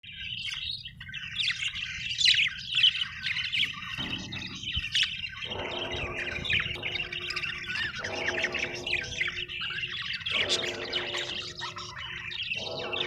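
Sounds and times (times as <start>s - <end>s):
parrots chirping and squawking: 0.2s - 13.0s
lower-pitched bird call: 1.2s - 13.0s
steady low hum: 3.2s - 13.0s.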